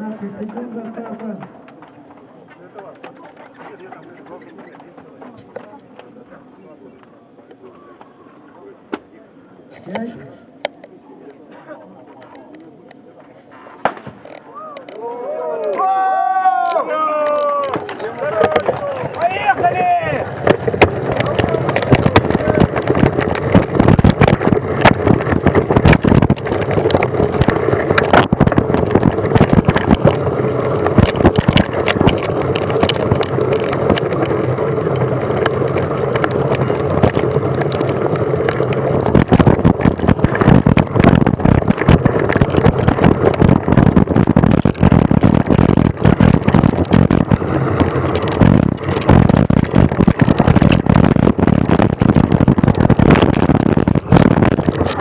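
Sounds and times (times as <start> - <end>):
bike knocks and rattles: 17.2 - 55.0
wind rush on microphone: 18.3 - 55.0.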